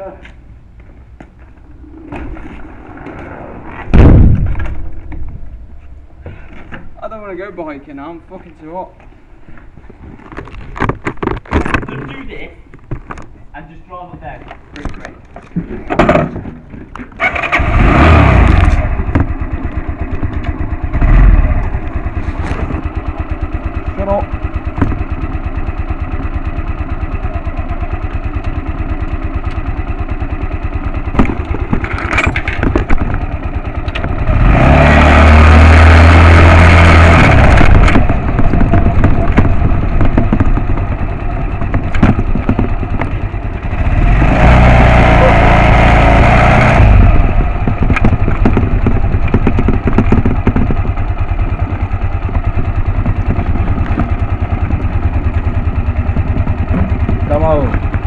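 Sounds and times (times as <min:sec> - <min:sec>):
motorcycle engine idling and revving: 0:14.7 - 0:58.0.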